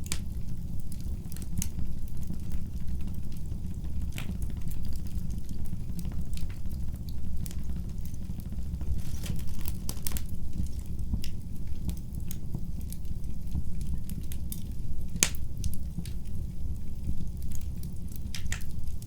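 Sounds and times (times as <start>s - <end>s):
fire crackling in a fireplace: 0.0s - 19.0s
low rumble of fire: 0.0s - 19.0s.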